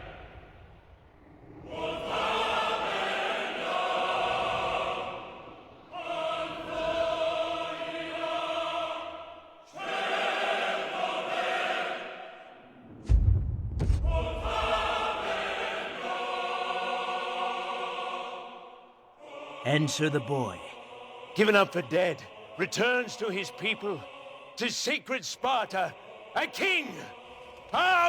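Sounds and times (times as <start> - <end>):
choir singing held phrases: 0.0 - 13.1, 14.0 - 28.0
deep boom: 12.9 - 15.3.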